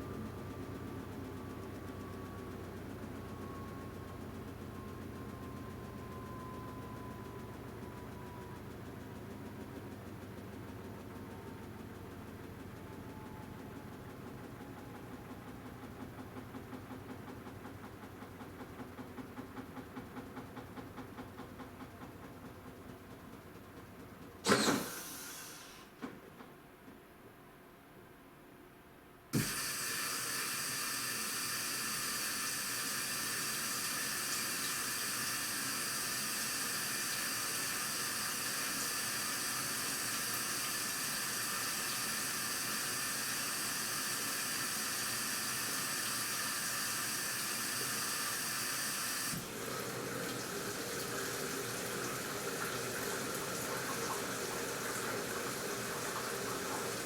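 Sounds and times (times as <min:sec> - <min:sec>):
water rushing into tub: 0:35.8 - 0:57.0.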